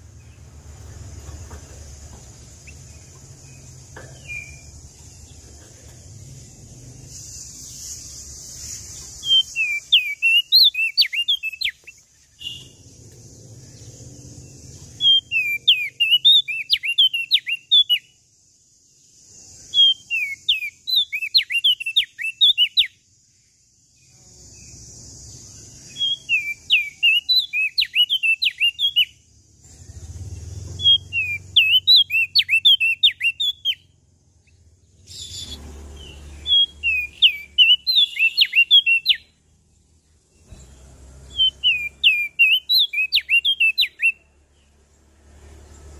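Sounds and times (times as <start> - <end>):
steady high hiss: 0.0 - 10.7
songbird chirping: 0.0 - 45.9.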